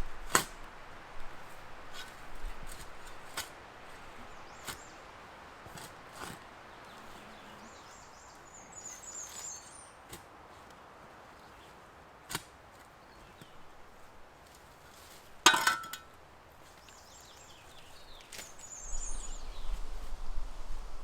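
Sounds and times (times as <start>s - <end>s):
shovel scraping rocky ground: 0.2s - 0.7s, 1.3s - 4.9s, 5.6s - 6.5s
bird chirping: 6.8s - 10.0s, 16.8s - 19.9s.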